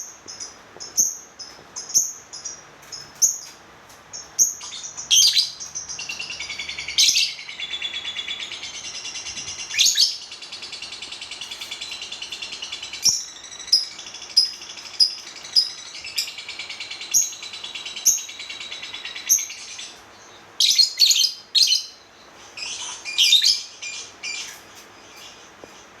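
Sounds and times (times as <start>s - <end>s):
bird chattering twitter: 4.1s - 22.0s
shrill bird chirps: 4.2s - 22.0s.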